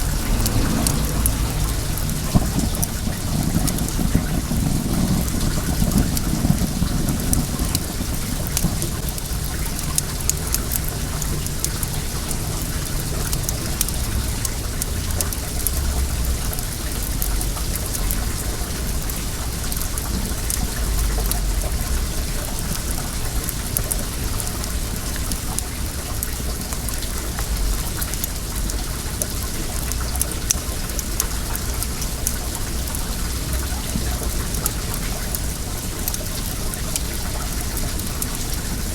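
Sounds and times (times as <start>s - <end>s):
low rumble: 0.0s - 8.8s
bonfire crackling and popping: 0.0s - 38.9s
water flowing: 0.0s - 38.9s.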